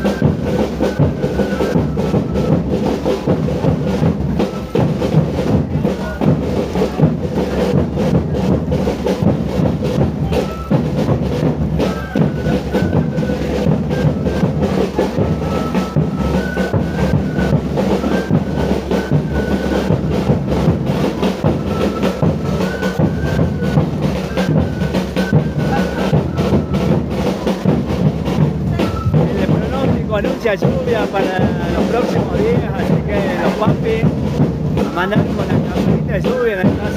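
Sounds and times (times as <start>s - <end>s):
drums beating: 0.0s - 36.9s.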